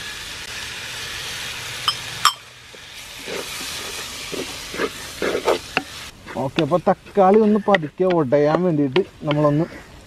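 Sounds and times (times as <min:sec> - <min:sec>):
masala sizzling in a pot: 0:00.0 - 0:09.9
wooden spoon scraping and stirring: 0:03.2 - 0:09.8.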